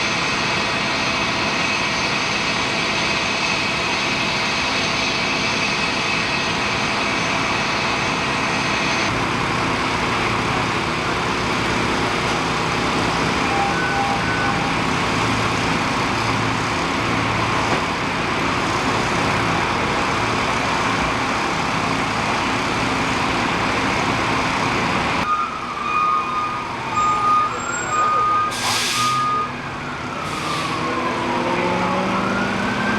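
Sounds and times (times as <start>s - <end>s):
heavy vehicle engine idling: 9.1s - 25.2s.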